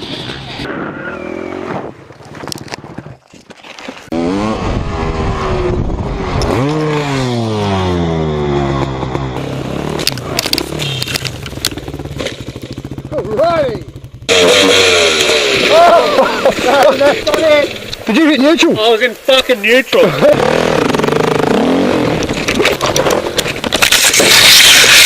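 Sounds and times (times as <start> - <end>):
dirt bike engine revving: 4.1 - 17.9, 20.0 - 23.4.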